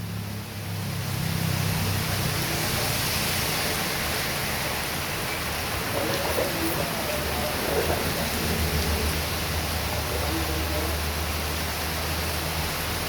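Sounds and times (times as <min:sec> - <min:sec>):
heavy rain in wind: 0:00.0 - 0:13.0.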